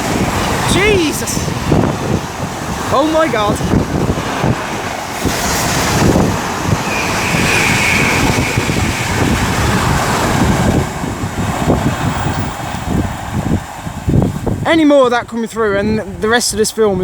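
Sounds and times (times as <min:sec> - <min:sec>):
high whine: 0:00.0 - 0:13.0
freight train passing: 0:00.0 - 0:14.7
wind buffeting microphone: 0:00.0 - 0:17.0.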